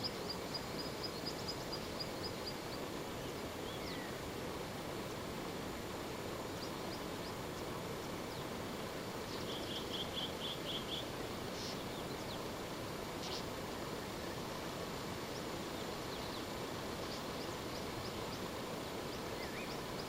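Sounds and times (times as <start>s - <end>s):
birds chirping: 0.0s - 4.3s, 6.4s - 12.6s, 15.2s - 20.0s
steady background noise: 0.0s - 20.0s.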